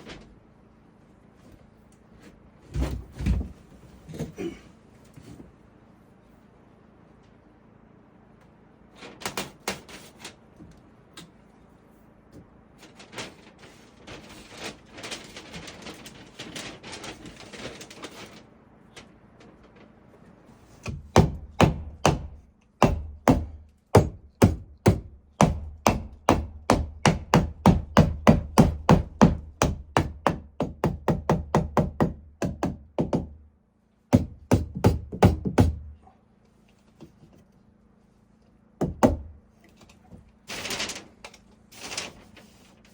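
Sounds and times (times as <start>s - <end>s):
hammer driving nails into wood: 20.8s - 33.3s, 34.1s - 35.9s.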